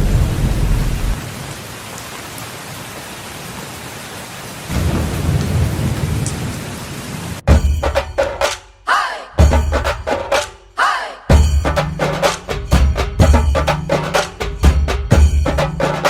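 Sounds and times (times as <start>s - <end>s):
rolling thunder: 0.0s - 1.6s, 4.7s - 7.4s
steady rain: 0.0s - 7.5s.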